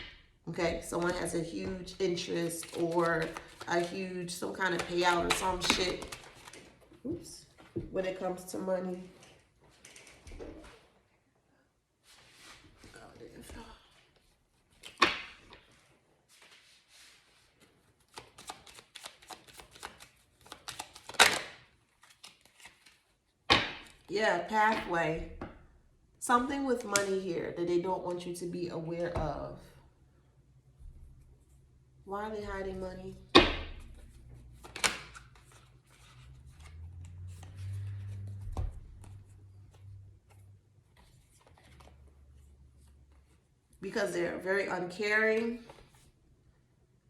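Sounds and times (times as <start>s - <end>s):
papery clicks of shuffled cards: 2.5s - 4.0s, 17.6s - 23.0s
cards slapping: 2.5s - 6.7s, 14.7s - 15.8s, 18.0s - 24.1s, 33.4s - 36.8s.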